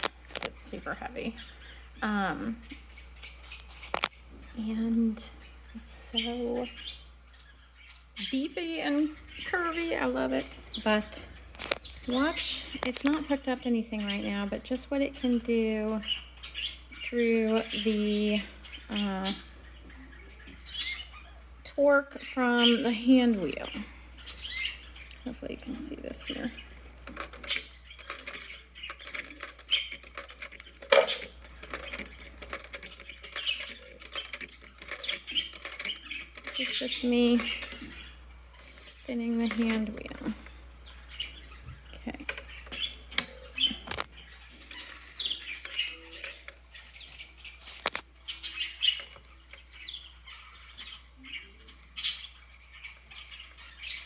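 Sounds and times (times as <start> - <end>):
small bird chirping: 0.0 - 54.0
sharp clicks: 26.8 - 38.0.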